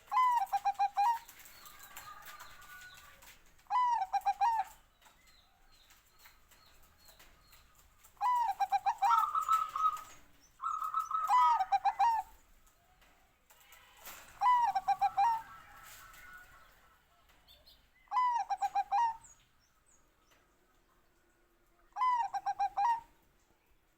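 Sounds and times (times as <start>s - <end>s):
dove cooing: 0.0s - 4.8s, 8.0s - 12.4s, 14.0s - 16.4s, 18.1s - 19.3s, 22.0s - 23.1s.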